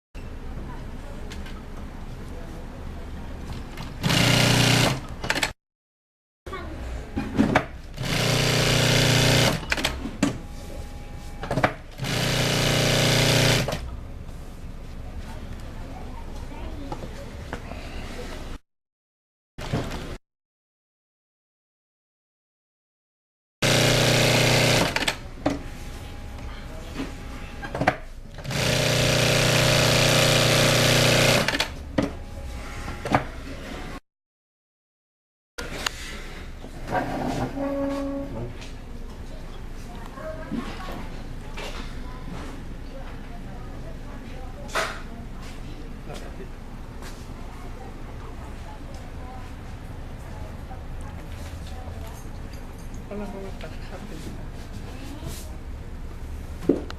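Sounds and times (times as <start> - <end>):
sewing machine stitching: 4.0 - 5.6, 8.0 - 10.1, 12.0 - 13.9, 23.6 - 25.2, 28.4 - 31.7.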